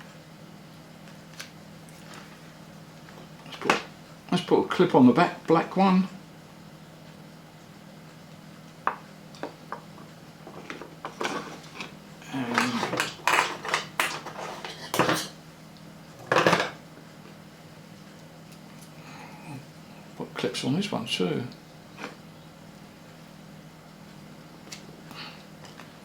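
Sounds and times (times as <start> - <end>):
small parts clattering: 10.5 - 15.3.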